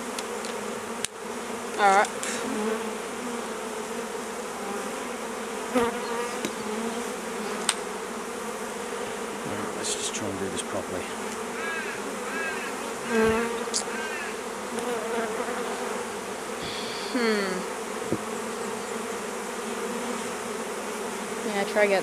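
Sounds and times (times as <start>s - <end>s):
bee flying past microphone: 0.0s - 21.8s
bees buzzing: 0.0s - 22.0s
brief knock: 18.1s - 18.3s.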